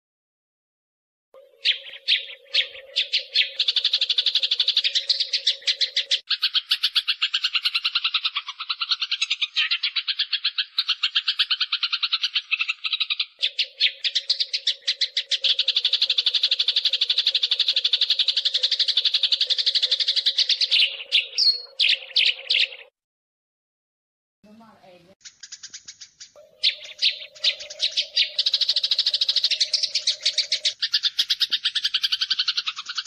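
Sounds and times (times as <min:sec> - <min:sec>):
sparrows chattering: 0:01.4 - 0:22.9, 0:24.5 - 0:33.0.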